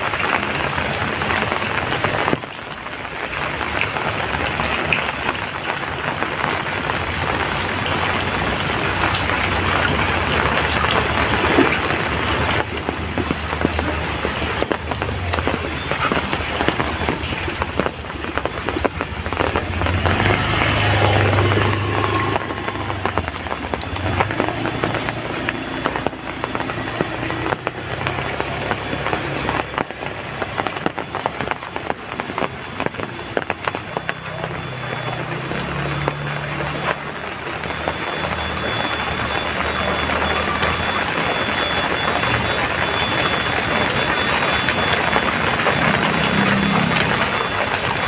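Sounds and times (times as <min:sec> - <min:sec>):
heavy rain falling: 0:00.0 - 0:48.0
passing vehicle motor hum: 0:18.8 - 0:30.8, 0:33.7 - 0:41.4, 0:43.2 - 0:48.0.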